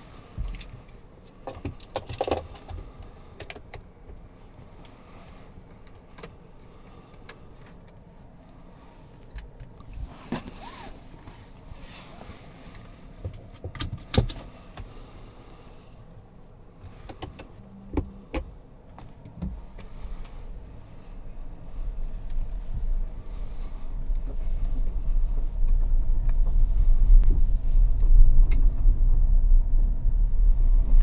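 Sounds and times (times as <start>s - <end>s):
clicks and knocks of car controls: 0.4s - 4.3s, 13.2s - 15.0s, 16.8s - 20.4s.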